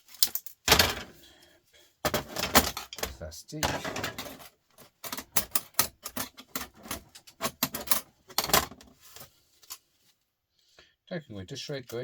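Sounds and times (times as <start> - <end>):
plastic and metal parts clattering: 0.0 - 1.3, 2.0 - 9.9.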